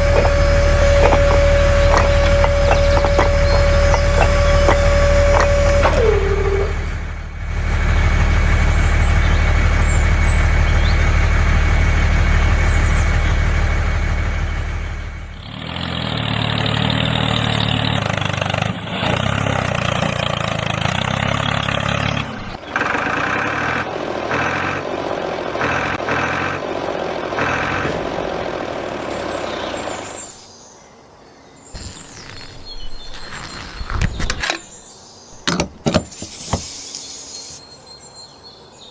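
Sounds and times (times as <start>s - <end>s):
vehicle engine running: 0.0s - 30.2s.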